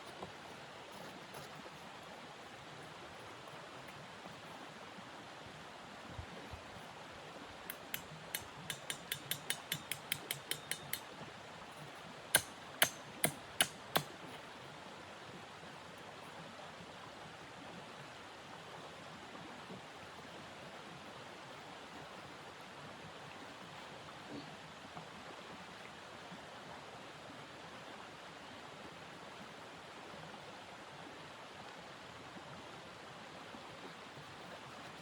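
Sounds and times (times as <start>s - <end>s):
sharp knocks: 7.7s - 11.0s, 12.4s - 14.1s.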